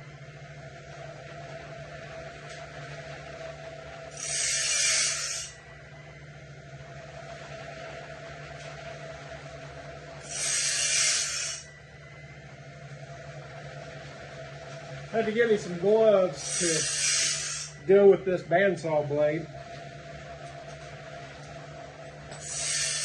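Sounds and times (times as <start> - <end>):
motor hum: 0.0 - 23.0
grinding wheel rasp: 4.0 - 5.6, 10.2 - 11.7, 15.2 - 18.1, 22.3 - 23.0.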